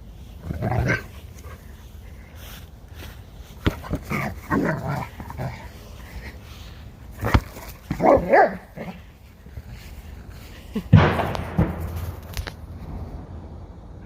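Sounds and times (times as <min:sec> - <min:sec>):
dog growling and barking: 0:00.4 - 0:01.6, 0:03.8 - 0:05.7, 0:07.2 - 0:09.0.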